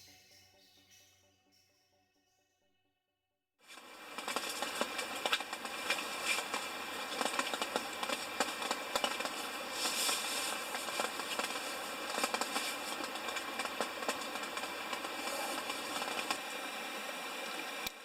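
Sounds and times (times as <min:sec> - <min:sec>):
rain pattering: 0:03.8 - 0:16.5.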